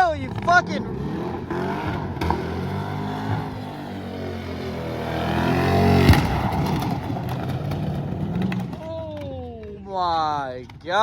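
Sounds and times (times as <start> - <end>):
car engine revving hard: 0.4 - 8.6
car hitting something with a bang: 6.0 - 8.8.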